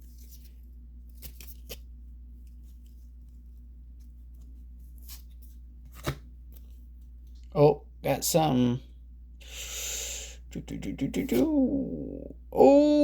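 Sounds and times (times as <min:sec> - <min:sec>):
steady low hum: 0:00.0 - 0:13.0
cards clicking and sliding: 0:05.0 - 0:06.8.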